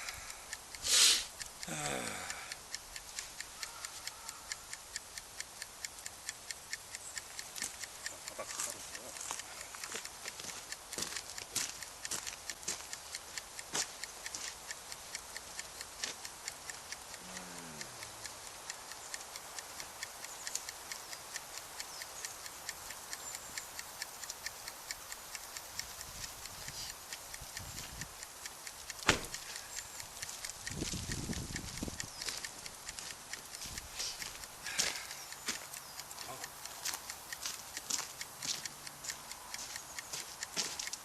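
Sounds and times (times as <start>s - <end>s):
campfire crackling: 0.0s - 21.8s, 22.4s - 41.0s
sharp loud pop: 29.0s - 29.4s.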